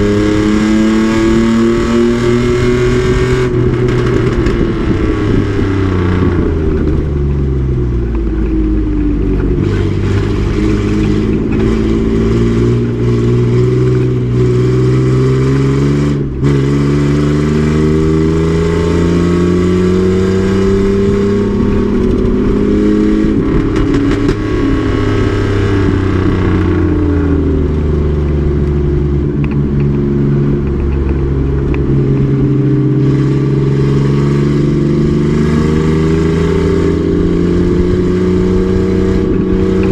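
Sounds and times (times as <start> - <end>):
truck engine revving hard: 9.4 - 29.0, 32.3 - 39.9.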